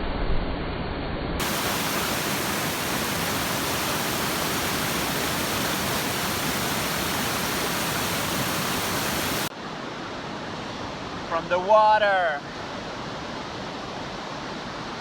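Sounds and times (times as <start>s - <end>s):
waterfall rushing: 1.4s - 9.5s.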